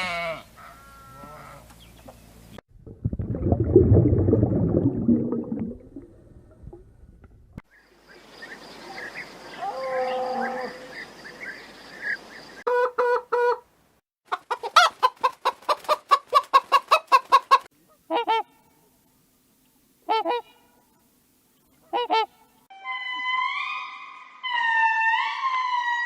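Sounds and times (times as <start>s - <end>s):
waterfowl calling: 16.6s - 18.5s, 20.0s - 20.6s, 21.8s - 22.4s.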